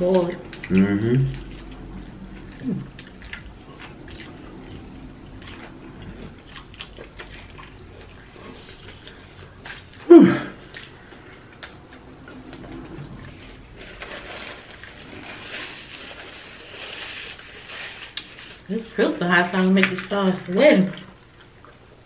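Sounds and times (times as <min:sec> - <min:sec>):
chewing with wet mouth clicks: 0:00.1 - 0:04.8, 0:06.4 - 0:10.0.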